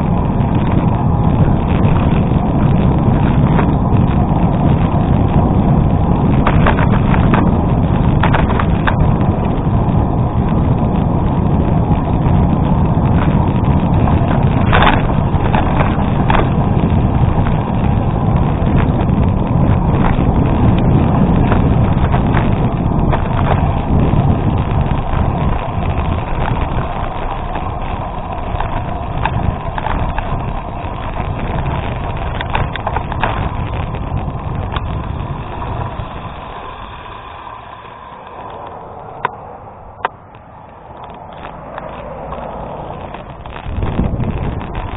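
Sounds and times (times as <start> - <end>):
bike tyres rumbling on gravel: 0.0 - 44.9
stones and bike rattling: 0.0 - 44.9
wind on microphone: 0.0 - 44.9.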